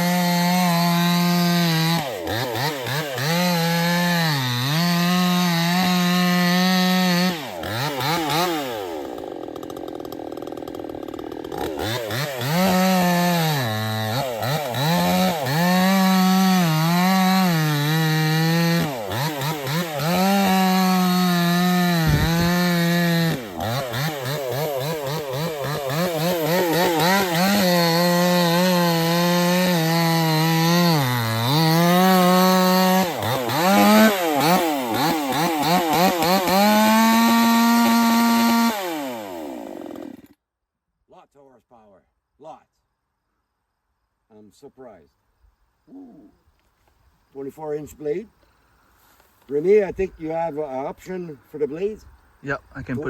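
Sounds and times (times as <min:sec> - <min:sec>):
chainsaw cutting wood: 0:00.0 - 0:40.4.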